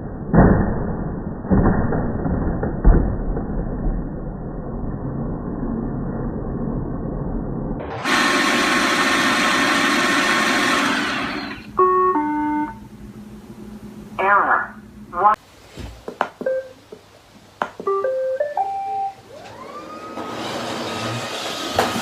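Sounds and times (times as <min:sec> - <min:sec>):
robot vacuum whirring: 0:07.9 - 0:11.7, 0:19.3 - 0:22.0.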